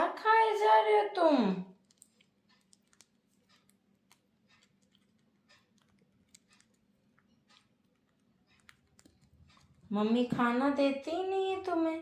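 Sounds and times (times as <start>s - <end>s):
parrot beak clicking and nibbling: 1.7s - 9.9s.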